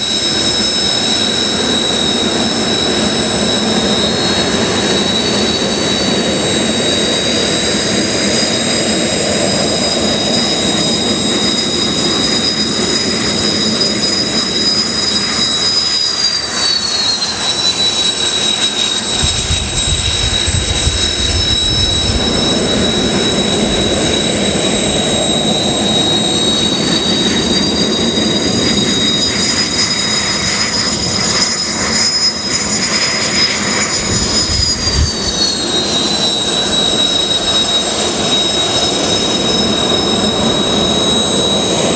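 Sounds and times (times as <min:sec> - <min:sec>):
jet engines whining: 0:00.0 - 0:41.9
deep jet rumble: 0:18.4 - 0:29.5, 0:33.6 - 0:36.0.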